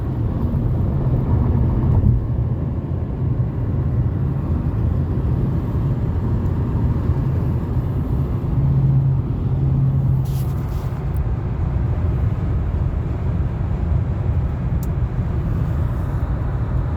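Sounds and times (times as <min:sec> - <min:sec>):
car cabin road and engine rumble: 0:00.0 - 0:16.9.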